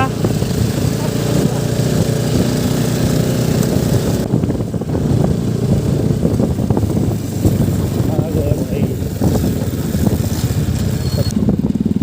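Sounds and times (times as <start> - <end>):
motorcycle engine running: 0.0 - 12.0
wind hiss on microphone: 3.5 - 11.3.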